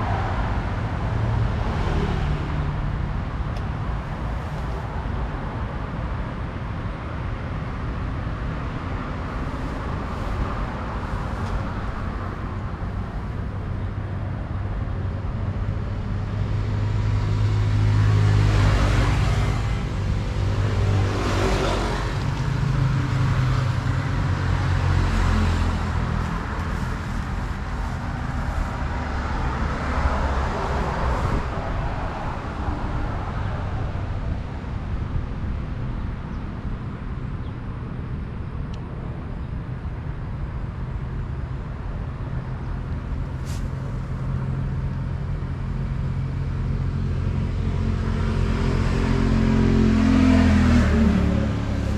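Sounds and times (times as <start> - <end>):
road traffic noise: 0.0 - 51.9
vehicle passing close by: 16.0 - 35.5, 42.8 - 51.9.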